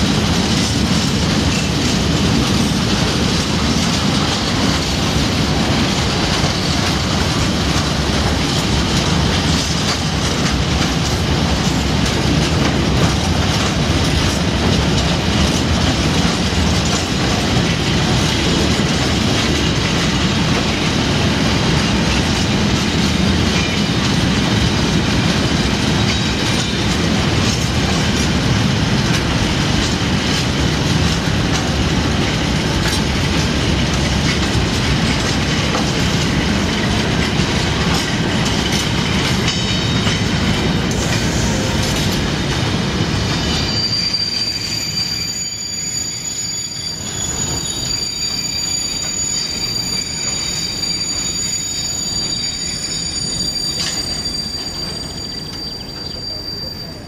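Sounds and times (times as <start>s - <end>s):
wheels clacking over rail joints: 0.0s - 44.4s
freight train wheels rumbling on rail: 0.0s - 57.0s.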